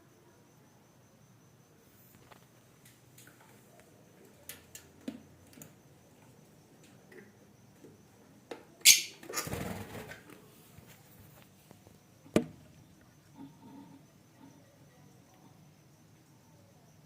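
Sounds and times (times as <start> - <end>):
sharp high-pitched bird call: 8.8 - 9.2.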